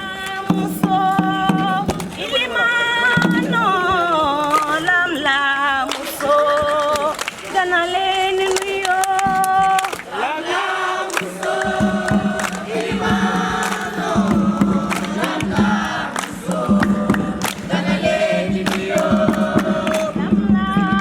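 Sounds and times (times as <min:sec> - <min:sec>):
group singing a chant: 0:00.0 - 0:21.0
sharp percussive hits: 0:11.2 - 0:21.0.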